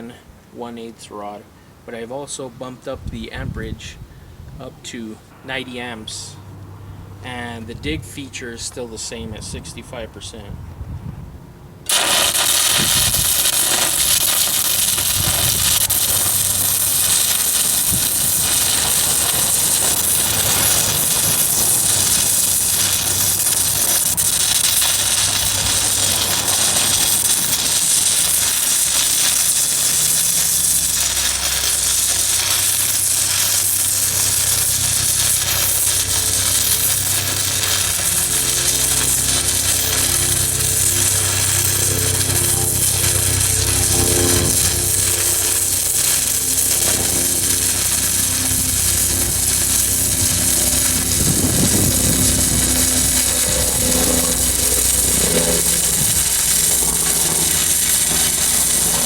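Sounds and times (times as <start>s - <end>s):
low hum: 10.6s - 59.0s
welding arc crackling sizzle: 11.8s - 59.0s.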